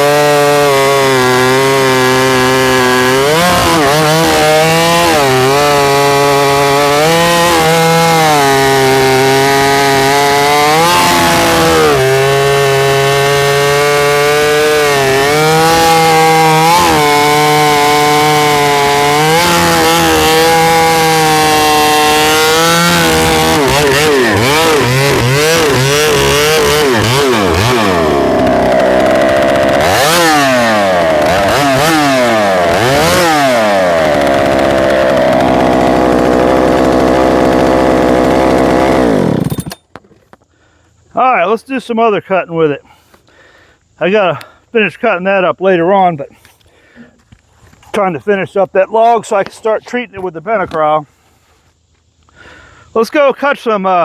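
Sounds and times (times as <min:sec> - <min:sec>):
chainsaw cutting and revving: 0:00.0 - 0:39.8.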